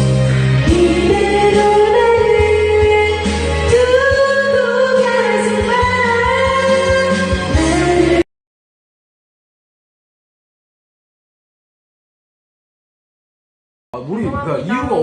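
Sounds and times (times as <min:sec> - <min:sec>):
karaoke backing track: 0:00.0 - 0:08.2, 0:14.0 - 0:15.0.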